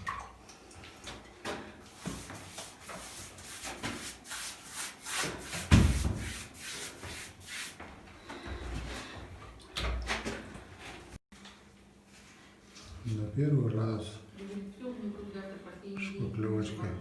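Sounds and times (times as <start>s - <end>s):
rough rubbing strokes: 2.0s - 7.8s.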